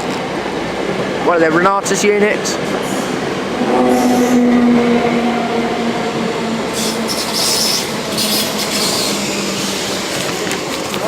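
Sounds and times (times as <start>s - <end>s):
train motor whine: 3.1s - 10.6s
brake squeal: 6.7s - 10.2s.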